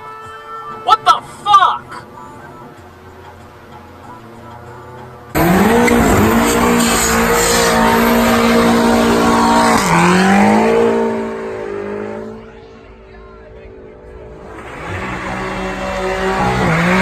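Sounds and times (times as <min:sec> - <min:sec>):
car engine revving hard: 0:05.3 - 0:12.6, 0:14.3 - 0:17.0.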